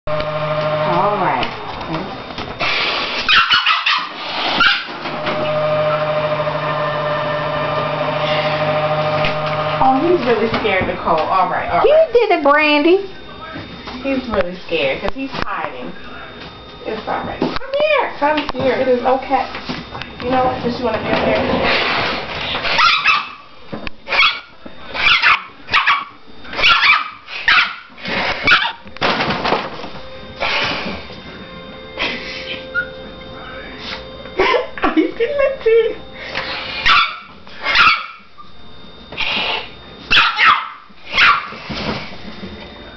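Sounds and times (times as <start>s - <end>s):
low electrical hum: 0.1s - 42.9s
dog yelping barks: 3.3s - 4.9s, 22.7s - 23.4s, 24.1s - 27.9s, 28.5s - 28.8s, 36.8s - 38.2s, 40.1s - 41.5s.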